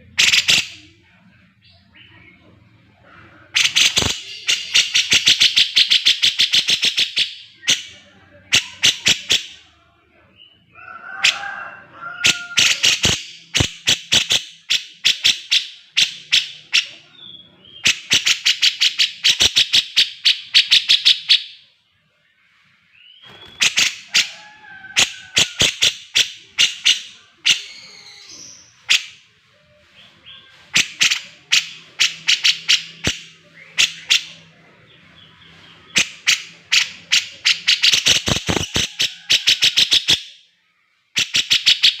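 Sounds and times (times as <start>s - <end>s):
bird chattering song: 0.0s - 9.8s, 12.2s - 21.8s, 23.0s - 40.4s, 41.1s - 42.0s.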